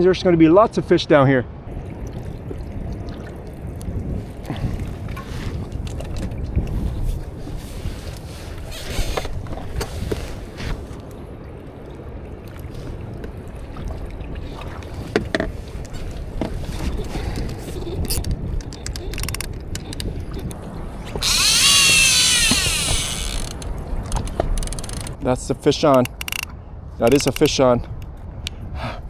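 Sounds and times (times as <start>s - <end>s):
wind and water rumble: 0.0s - 29.0s
fishing reel drag buzzing: 18.0s - 25.2s, 26.0s - 26.5s.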